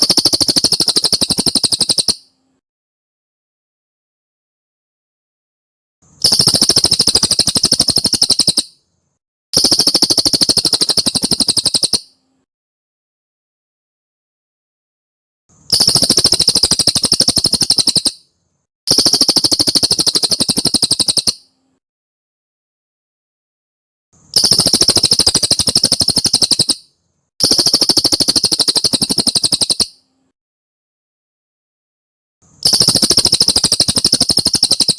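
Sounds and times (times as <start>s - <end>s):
bird trilling: 0.0s - 2.3s, 6.2s - 8.8s, 9.6s - 12.1s, 15.7s - 18.2s, 18.9s - 21.4s, 24.4s - 30.0s, 32.6s - 34.9s.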